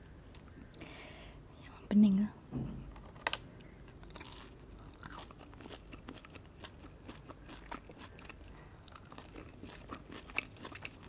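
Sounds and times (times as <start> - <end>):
chewing food with crunches: 3.1 - 11.0.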